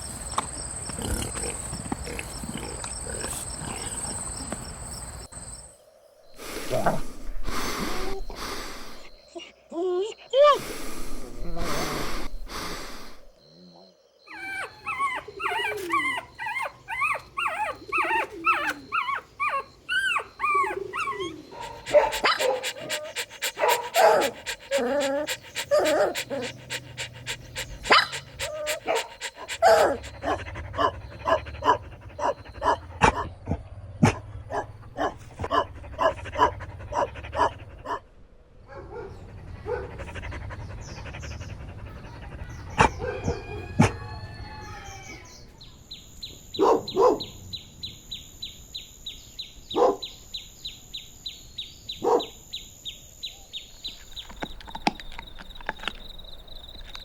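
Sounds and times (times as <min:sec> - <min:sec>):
puppies whimpering: 0:14.3 - 0:32.9
puppies yipping and panting: 0:14.3 - 0:33.2.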